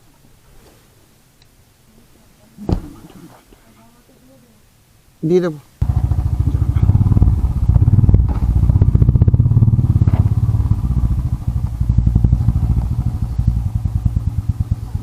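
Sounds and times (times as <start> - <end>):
motorcycle engine idling: 5.8 - 15.0.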